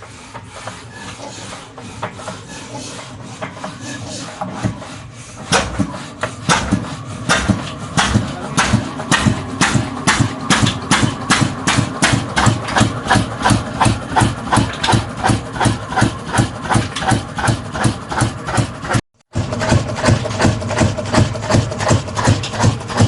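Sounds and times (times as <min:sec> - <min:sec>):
diesel engine knocking: 0:05.5 - 0:23.0.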